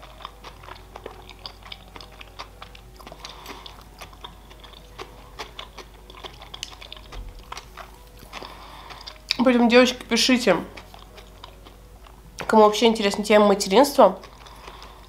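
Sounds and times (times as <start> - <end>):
person chewing with mouth clicks: 0.0 - 9.4, 10.7 - 12.5, 14.2 - 15.0.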